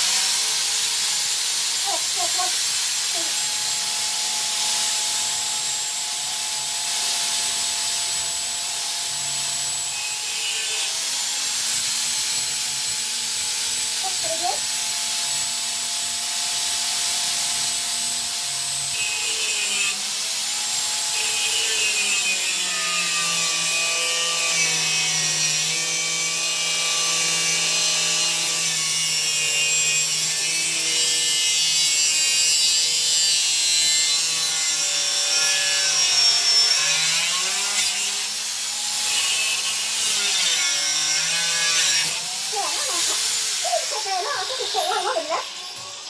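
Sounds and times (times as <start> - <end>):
angle grinder cutting steel: 0.0 - 46.0.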